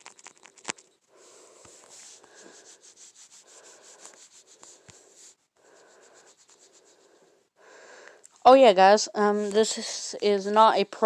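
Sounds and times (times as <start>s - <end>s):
fingertip rubbing touchscreen: 0.4s - 7.3s.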